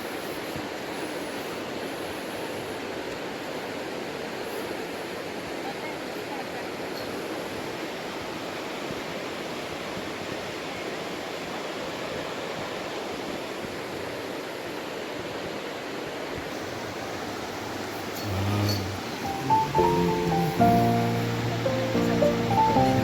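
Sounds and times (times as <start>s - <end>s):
river water rushing: 16.5s - 23.0s.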